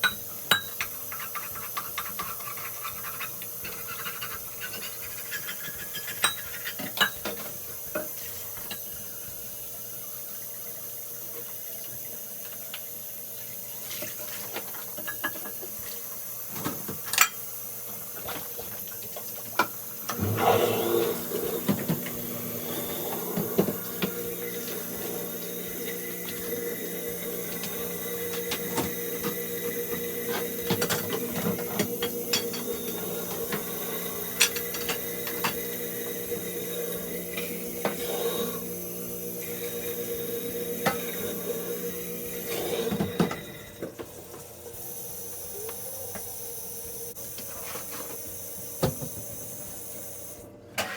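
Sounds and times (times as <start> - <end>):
dishes and cutlery clinking: 0.0 - 7.4
water running at a sink: 0.0 - 50.5.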